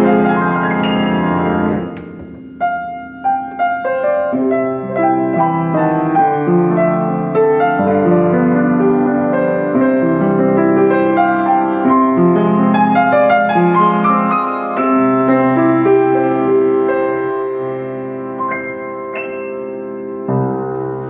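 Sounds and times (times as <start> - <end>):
upright piano playing: 0.0 - 21.0.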